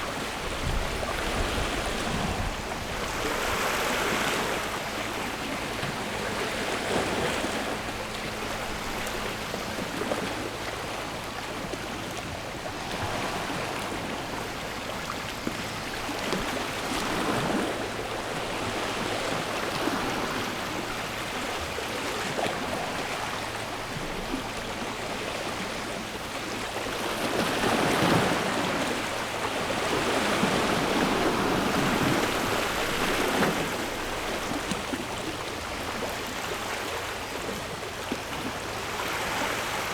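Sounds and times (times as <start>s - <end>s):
sea waves washing in: 26.6s - 39.9s.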